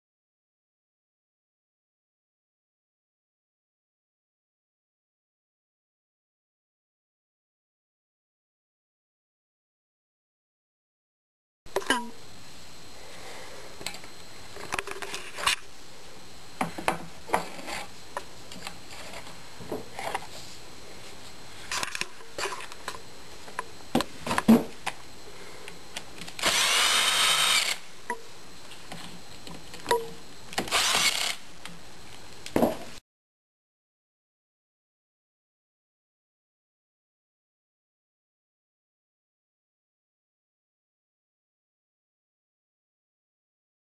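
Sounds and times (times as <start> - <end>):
power drill running: 26.4 - 27.9, 30.6 - 31.5.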